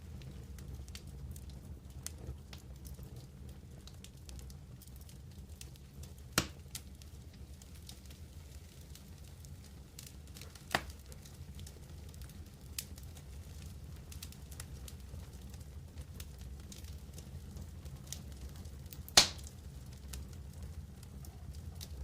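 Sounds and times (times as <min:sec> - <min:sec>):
campfire crackling: 0:00.0 - 0:22.0
sharp loud pop: 0:19.2 - 0:19.4.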